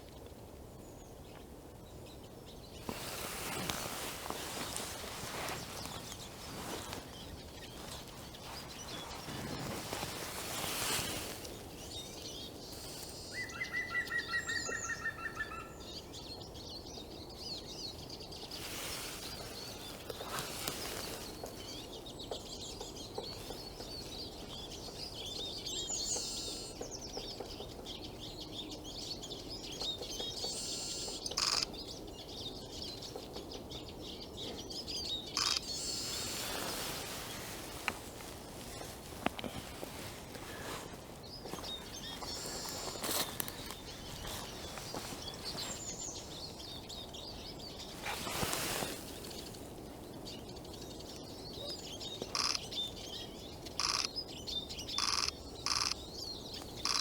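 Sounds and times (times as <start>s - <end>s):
songbirds chirping: 0.0s - 57.0s
rapid bird trill: 30.4s - 31.8s, 35.3s - 36.2s, 52.2s - 52.8s, 53.7s - 54.2s, 54.9s - 56.1s, 56.8s - 57.0s.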